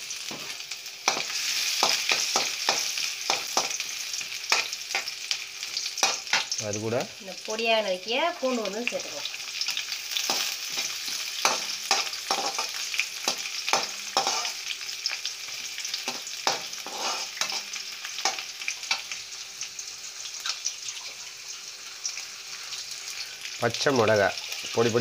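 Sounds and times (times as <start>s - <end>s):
garlic sizzling in hot oil: 0.0s - 25.0s
ladle scraping a metal pan: 16.5s - 17.7s.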